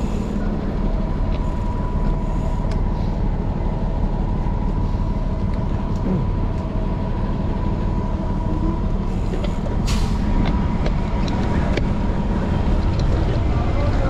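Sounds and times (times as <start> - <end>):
city traffic rumble: 0.0 - 14.0
short sharp hiss: 9.8 - 10.2.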